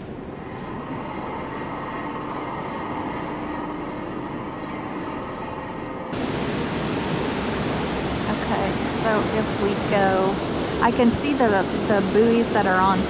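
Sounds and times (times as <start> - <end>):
boat engines droning: 0.0 - 13.0
wind and water rushing: 6.2 - 13.0.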